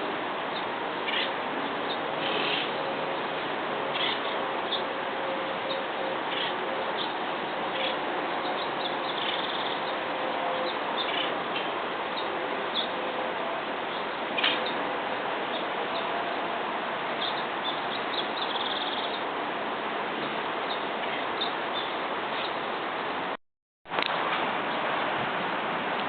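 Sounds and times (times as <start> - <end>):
steady background hiss: 0.0 - 26.0
birds chirping: 0.5 - 13.2, 17.2 - 19.3, 20.2 - 22.7.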